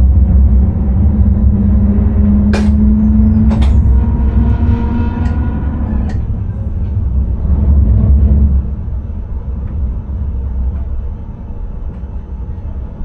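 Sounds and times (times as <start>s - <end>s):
hum: 0.0s - 13.0s
train low rumble: 0.0s - 13.0s.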